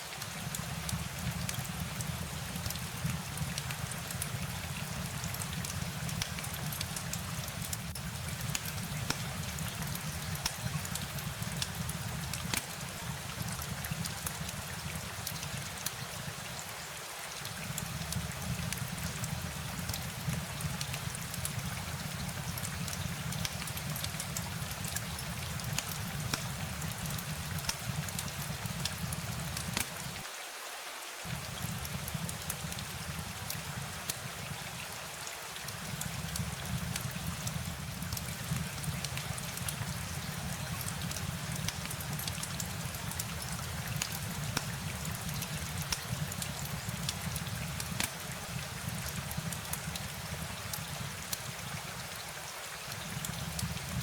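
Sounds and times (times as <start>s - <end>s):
close raindrops ticking: 0.0s - 30.2s, 31.2s - 54.0s
steady rain: 0.0s - 54.0s.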